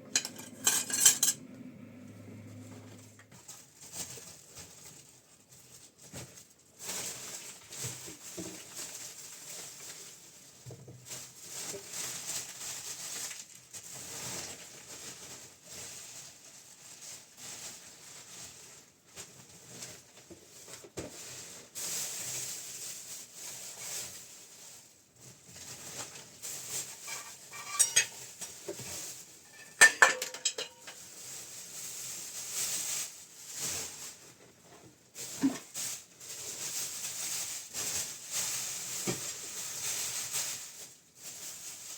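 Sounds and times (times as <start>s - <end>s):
objects scraping and clattering: 0.0s - 4.4s, 25.8s - 31.5s
metallic clinks: 0.1s - 1.4s, 27.0s - 28.2s.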